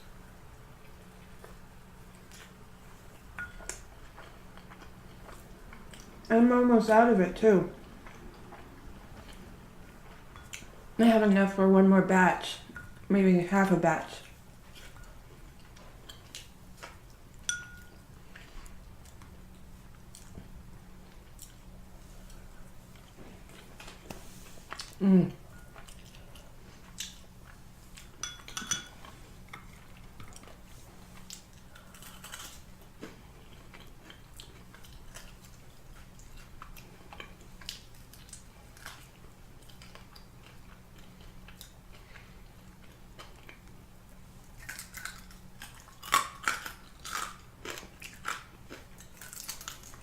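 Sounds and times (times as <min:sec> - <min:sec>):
faint steady hum: 0:00.0 - 0:50.0
chewing and biting food: 0:25.6 - 0:28.2, 0:29.0 - 0:43.8, 0:44.4 - 0:50.0.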